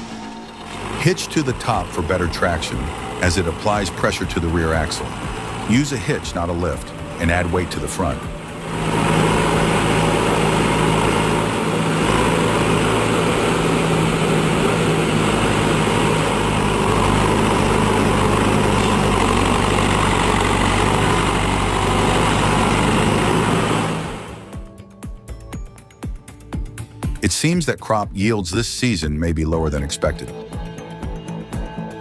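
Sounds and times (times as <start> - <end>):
tractor engine running: 0.0 - 24.8.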